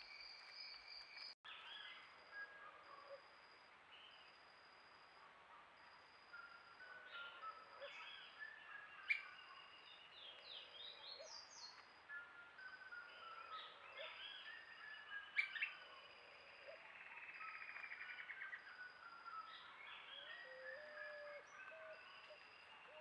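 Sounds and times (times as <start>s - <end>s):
birds chirping and whistling: 17.4s - 23.0s.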